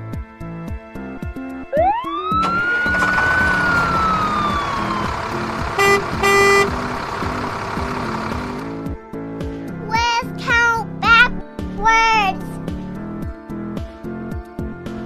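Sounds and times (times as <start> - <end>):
background music: 0.0 - 15.0
siren winding up and down: 1.7 - 6.8
short horn blasts: 5.7 - 7.0.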